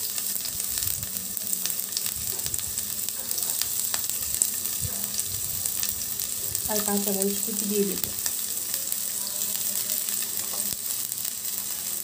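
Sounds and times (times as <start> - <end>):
garlic and onion sizzling in oil: 0.0 - 12.0.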